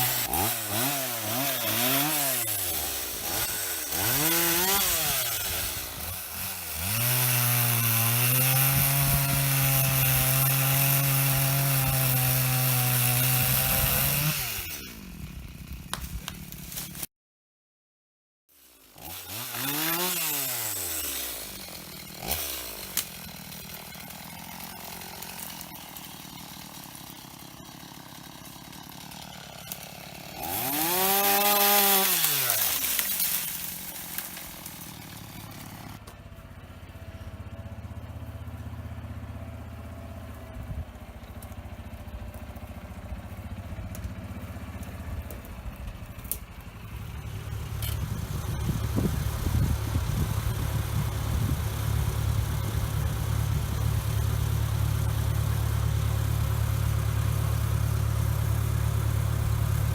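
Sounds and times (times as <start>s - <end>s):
chainsaw idling and revving: 0.0s - 17.1s, 18.5s - 59.9s
lower engine idling: 35.2s - 59.9s.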